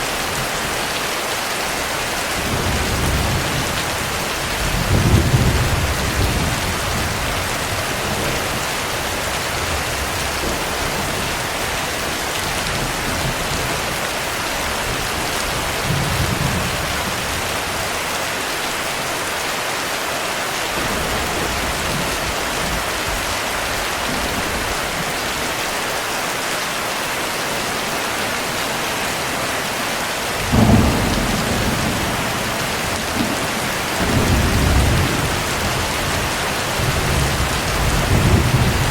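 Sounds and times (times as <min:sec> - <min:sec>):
heavy rain: 0:00.0 - 0:38.9
thunder rolling: 0:30.4 - 0:38.9.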